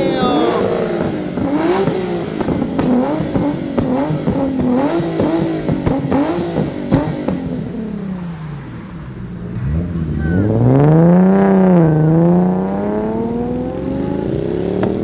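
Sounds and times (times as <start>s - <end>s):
car engine revving hard: 0.0s - 15.0s
sharp exhaust pops: 0.6s - 7.6s, 13.9s - 15.0s.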